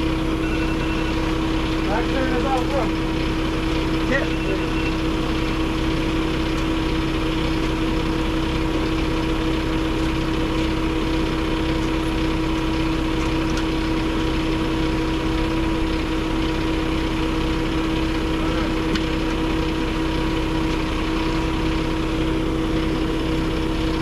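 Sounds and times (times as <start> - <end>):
truck engine running: 0.0 - 24.0.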